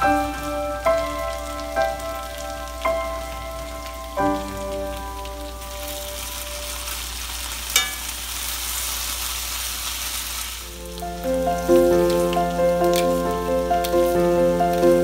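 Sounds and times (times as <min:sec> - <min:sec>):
potatoes sizzling in oil: 0:00.0 - 0:15.0
metal spatula stirring: 0:07.7 - 0:08.2
spatula clacking on pan: 0:07.8 - 0:08.2
soft background music: 0:10.7 - 0:15.0.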